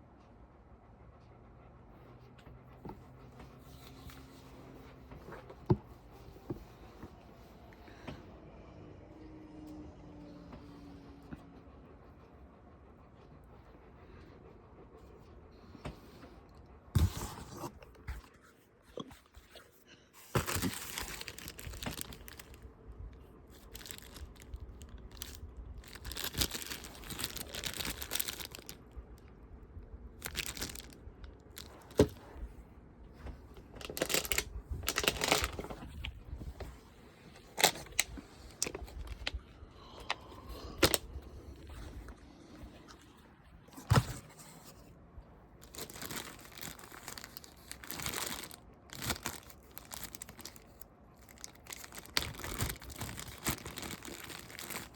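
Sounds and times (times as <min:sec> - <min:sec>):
wrapping rustling and tearing: 0:20.2 - 0:22.6, 0:23.5 - 0:28.9, 0:30.2 - 0:32.2, 0:33.8 - 0:36.7, 0:37.4 - 0:39.4, 0:45.6 - 0:54.9.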